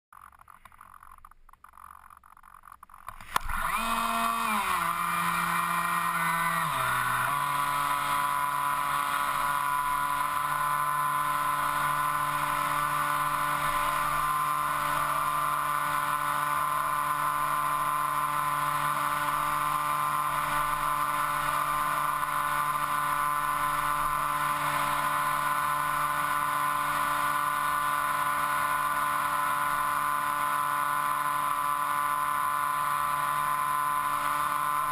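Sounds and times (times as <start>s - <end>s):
click: 0.2s - 3.8s
electric motor and propeller whine: 0.2s - 34.9s.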